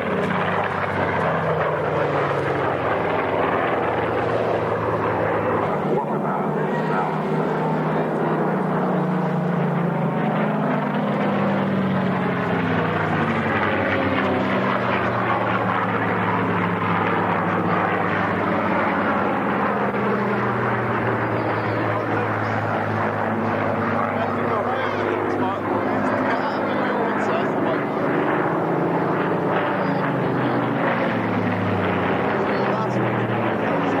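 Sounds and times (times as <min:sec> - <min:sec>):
propeller aircraft engine droning: 0:00.0 - 0:34.0.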